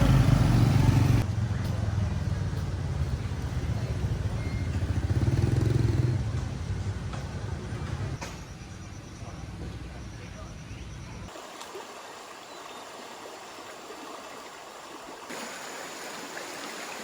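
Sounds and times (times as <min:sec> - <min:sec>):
motorbike engine running: 0:00.0 - 0:07.4.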